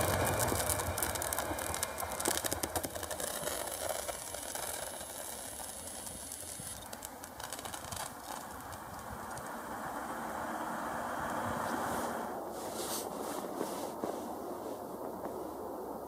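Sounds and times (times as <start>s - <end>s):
passenger train rushing: 0.0s - 3.2s, 8.5s - 15.9s.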